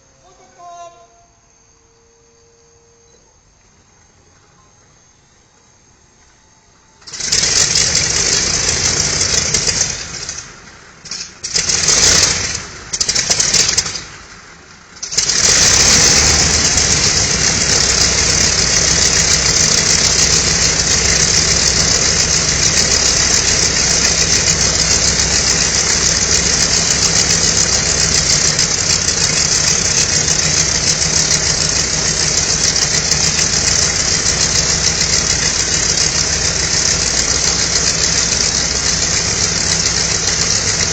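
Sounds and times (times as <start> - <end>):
aircraft engine sputtering and idling: 1.4 - 40.9.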